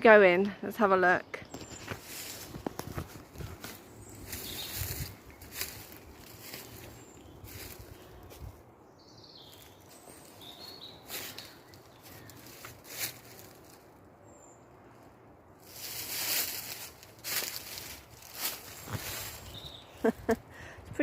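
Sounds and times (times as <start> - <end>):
faint birds chirping: 0.0 - 21.0
rustling through brush: 1.5 - 8.7, 9.4 - 14.0, 15.6 - 20.5
footsteps through leaf litter: 1.7 - 8.6, 9.4 - 13.9, 15.6 - 20.3.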